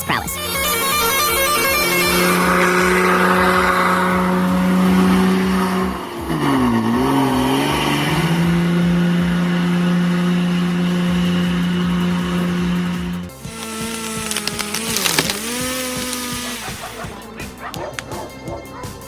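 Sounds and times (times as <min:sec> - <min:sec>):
truck diesel engine under load: 0:00.5 - 0:14.1.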